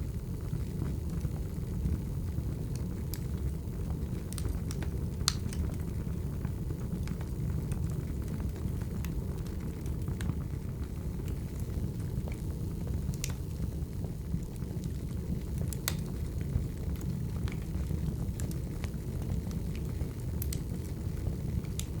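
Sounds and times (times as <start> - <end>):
wood fire crackling: 0.0 - 22.0
sharp pops and snaps: 4.3 - 5.7, 13.0 - 13.5, 14.4 - 16.3, 17.5 - 20.9, 21.6 - 22.0.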